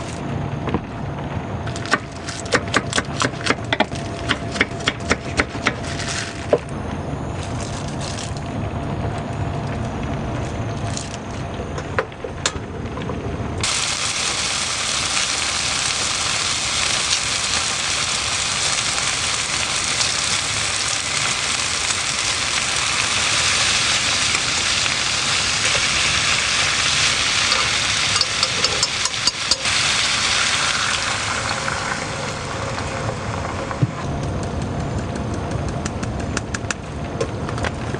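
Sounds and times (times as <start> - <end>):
dull low rumble: 0.0 - 13.7
heavy rain hissing: 13.6 - 28.2, 29.5 - 33.6.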